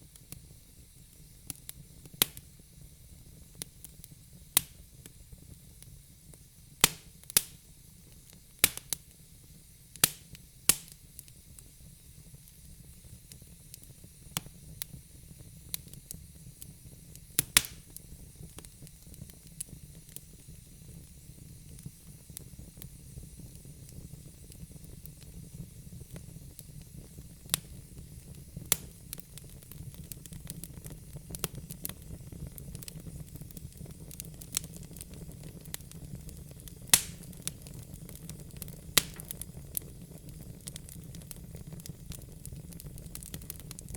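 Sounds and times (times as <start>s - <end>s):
logs crackling in fireplace: 0.0s - 43.9s
low hiss of flames: 0.0s - 43.9s
sharp pops and snaps: 1.5s - 2.5s, 4.6s - 5.2s, 6.8s - 7.6s, 8.2s - 9.1s, 9.9s - 11.7s, 17.1s - 19.7s, 28.6s - 30.1s, 36.8s - 38.1s, 38.9s - 39.6s.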